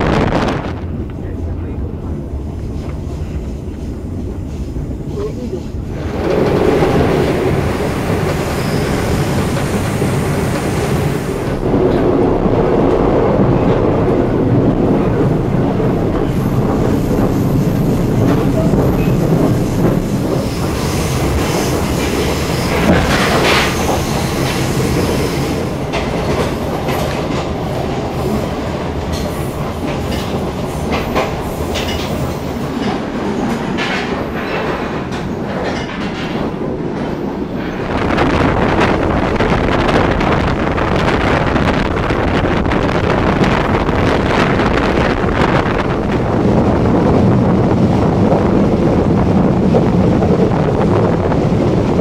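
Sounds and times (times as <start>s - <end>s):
train rumble: 0.0s - 52.0s
wheels clicking over rail joints: 25.8s - 37.8s.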